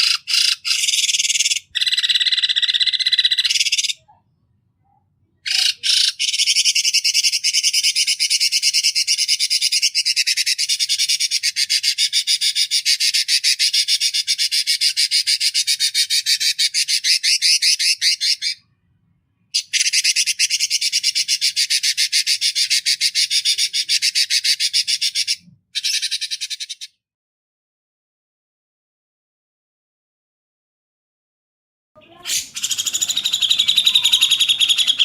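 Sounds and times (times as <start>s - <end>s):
songbird harsh rattling call: 32.3s - 35.0s.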